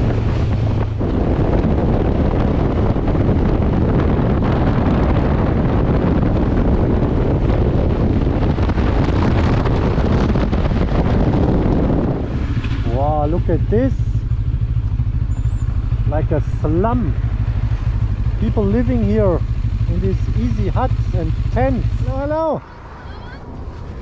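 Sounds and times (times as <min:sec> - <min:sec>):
motorcycle engine running: 0:00.0 - 0:24.0
wind rushing over microphone: 0:00.0 - 0:24.0.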